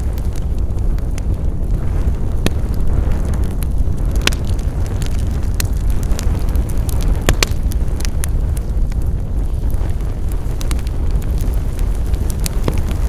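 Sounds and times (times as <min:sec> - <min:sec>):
fire crackling and popping: 0:00.0 - 0:13.0
wood fire burning: 0:00.0 - 0:13.0.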